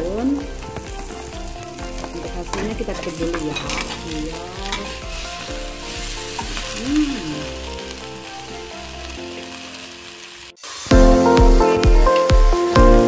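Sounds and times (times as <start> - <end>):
greens sizzling in a pan: 0.0 - 13.0
spatula scraping a pan: 2.5 - 6.8.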